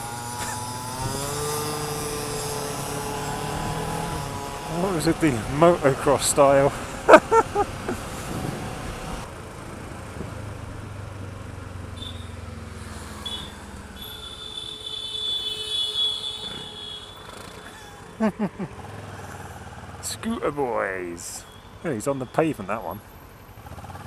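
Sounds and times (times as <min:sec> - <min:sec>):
motorcycle engine running: 0:00.0 - 0:09.2
road and traffic noise: 0:00.0 - 0:24.0.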